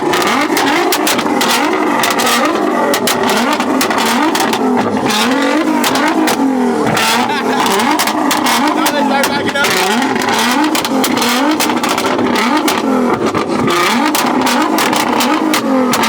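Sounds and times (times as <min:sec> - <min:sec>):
car engine revving: 0:00.0 - 0:16.0
exhaust pops and bangs: 0:00.0 - 0:16.0.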